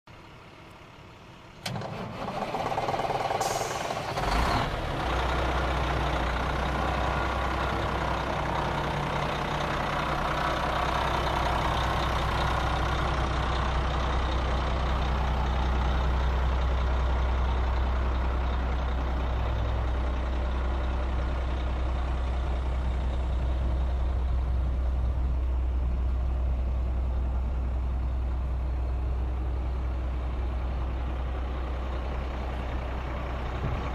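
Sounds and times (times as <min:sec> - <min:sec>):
diesel engine idling: 0:00.1 - 0:33.9
starter cranking diesel engine: 0:01.5 - 0:23.7.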